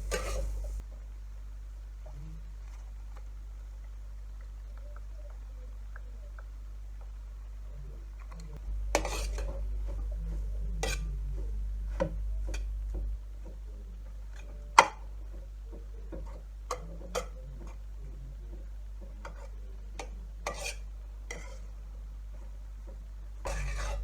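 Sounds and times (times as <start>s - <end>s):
utensil clinking against cookware: 0.0s - 0.8s
low steady hum: 0.0s - 24.0s.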